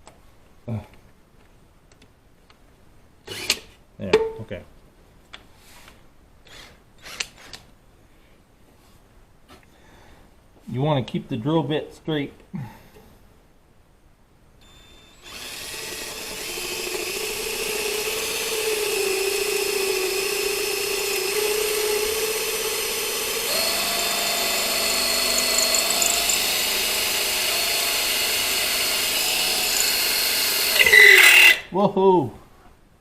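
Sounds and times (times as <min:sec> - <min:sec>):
right-angle drill whining: 0:03.3 - 0:03.7, 0:06.5 - 0:07.5, 0:14.6 - 0:31.7.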